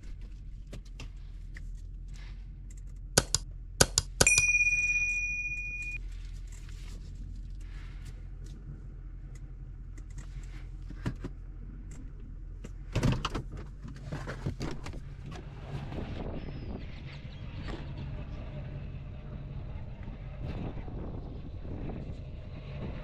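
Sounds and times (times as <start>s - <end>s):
low hum: 0.0s - 12.9s, 15.0s - 23.0s
metal clinks: 3.2s - 6.0s
ringing metallic tone: 4.2s - 6.0s.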